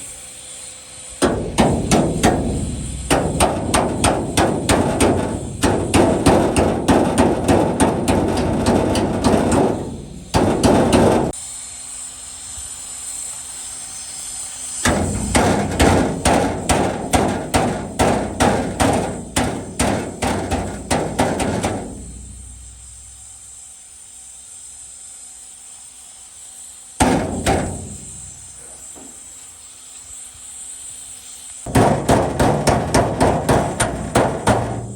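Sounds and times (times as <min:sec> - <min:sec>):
hammer blows on sheet metal: 0:01.2 - 0:11.4, 0:14.8 - 0:23.4, 0:27.0 - 0:29.2, 0:31.7 - 0:34.9.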